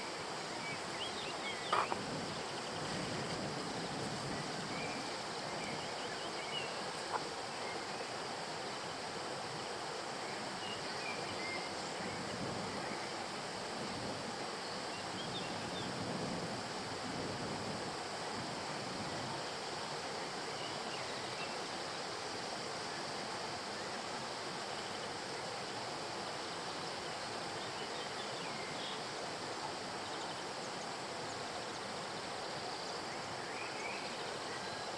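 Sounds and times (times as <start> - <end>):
stream water flowing: 0.0 - 34.9.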